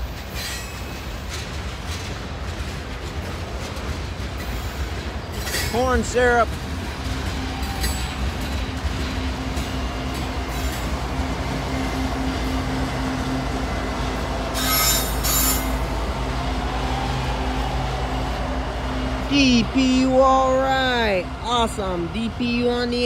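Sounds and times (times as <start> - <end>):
diesel locomotive humming: 0.0 - 23.0
freight train cars rumbling on rails: 0.0 - 23.0
wheels screeching: 4.4 - 19.7.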